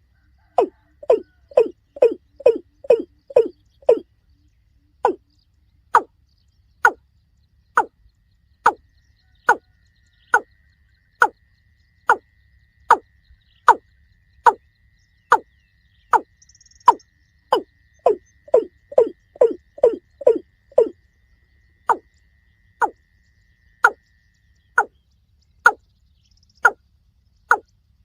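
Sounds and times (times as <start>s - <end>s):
watercock calling: 0.6s - 4.0s, 16.8s - 20.9s.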